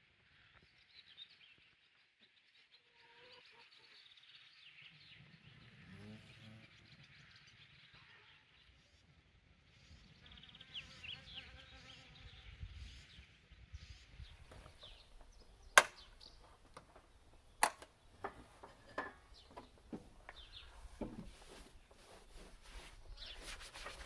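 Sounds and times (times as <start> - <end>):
sharp clicks and knocks: 14.5 - 21.6.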